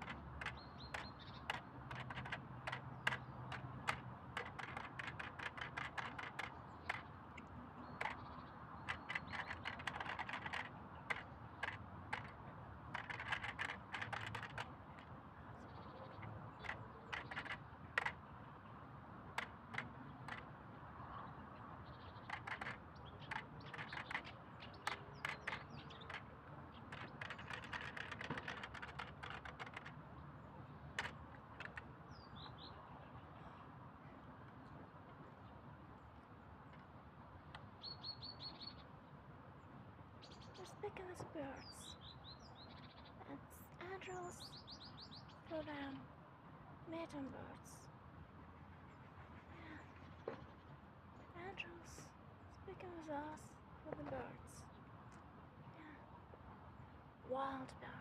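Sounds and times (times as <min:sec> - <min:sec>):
wild birds chirping: 0:00.0 - 0:46.1.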